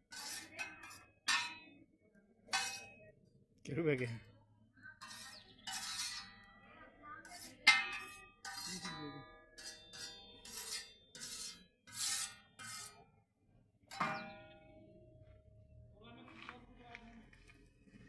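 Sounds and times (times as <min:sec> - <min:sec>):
metal utensils scraping: 0:00.0 - 0:01.7, 0:02.5 - 0:03.0, 0:05.0 - 0:06.5, 0:07.2 - 0:13.0, 0:13.9 - 0:14.7
metal utensils striking: 0:00.1 - 0:01.7, 0:02.5 - 0:03.0, 0:05.0 - 0:06.4, 0:07.3 - 0:13.0, 0:13.9 - 0:15.0
ringing metal tone: 0:07.6 - 0:13.0, 0:13.9 - 0:16.0.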